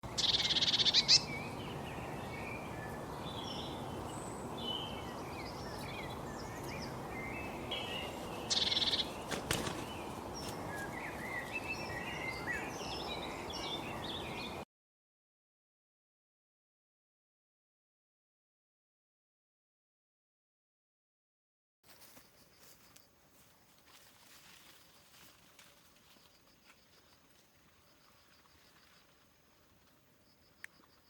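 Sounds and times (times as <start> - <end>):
birds chirping: 0.0 - 14.6.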